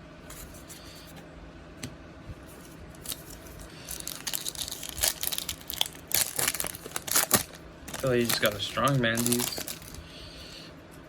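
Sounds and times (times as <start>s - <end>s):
plastic wrapper crinkling and tearing: 3.0s - 10.0s.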